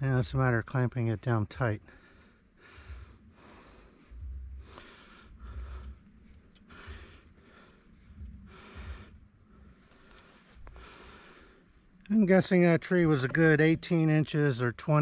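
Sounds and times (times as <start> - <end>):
insects droning: 0.0 - 15.0
dull low thumps: 2.6 - 9.8
soft rustling and scraping: 9.6 - 11.2.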